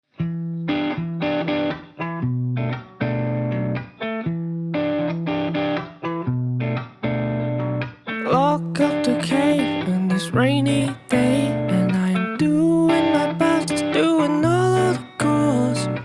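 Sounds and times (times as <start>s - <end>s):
guitar chords ringing: 0.2s - 16.0s
person singing: 8.2s - 16.0s.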